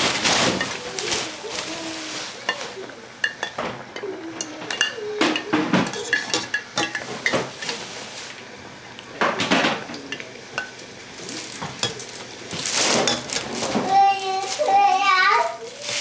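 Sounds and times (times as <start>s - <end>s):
dishes and utensils clinking: 0.0s - 8.4s, 9.1s - 16.0s.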